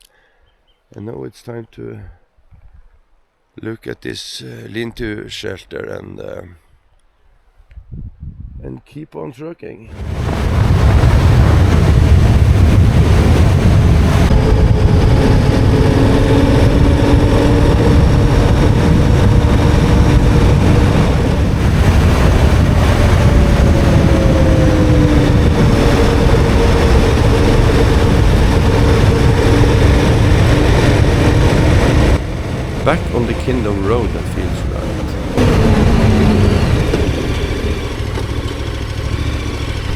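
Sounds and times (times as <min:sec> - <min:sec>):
motorcycle engine running: 0:11.4 - 0:39.9.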